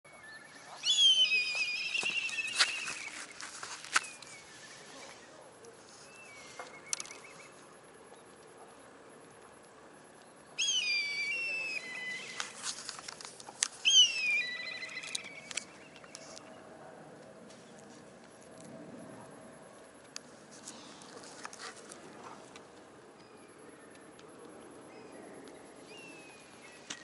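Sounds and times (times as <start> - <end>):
bird whistling call with trill: 0.1 - 3.1, 13.9 - 16.0.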